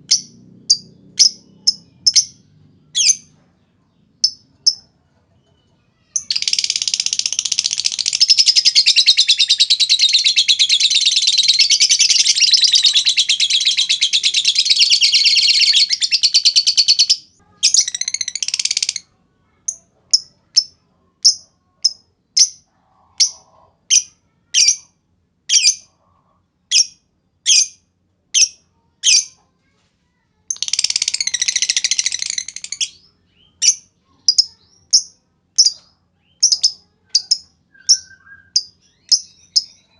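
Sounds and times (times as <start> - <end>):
lovebird high chatter: 0.0 - 3.4, 4.2 - 24.9, 30.4 - 39.9.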